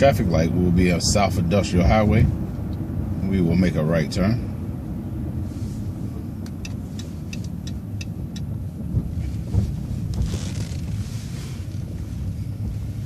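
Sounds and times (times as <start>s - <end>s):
bus engine and road rumble: 0.0s - 13.0s
light ticks: 6.4s - 8.5s.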